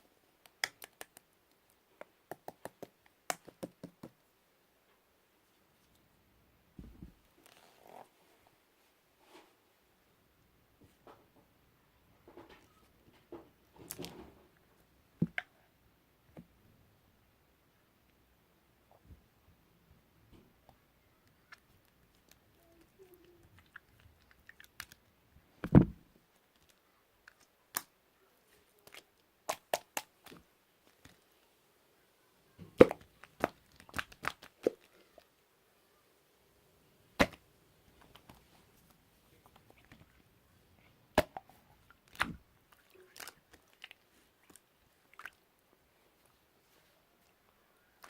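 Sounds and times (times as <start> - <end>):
slime popping and crackling: 0.4 - 1.3, 23.5 - 25.0, 28.8 - 30.4, 32.8 - 34.9.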